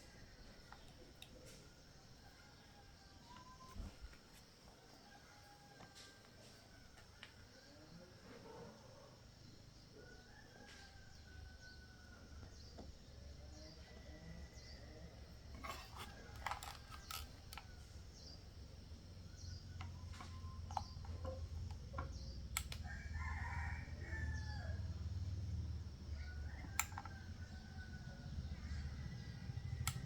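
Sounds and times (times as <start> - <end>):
rooster crowing: 10.0 - 12.4, 22.8 - 25.1.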